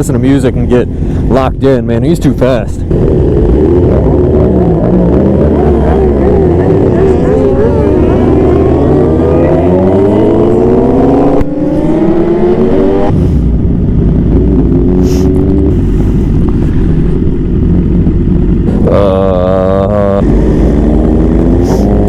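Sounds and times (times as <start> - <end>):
motorcycle engine accelerating: 2.7 - 22.0
wind noise: 2.8 - 19.4.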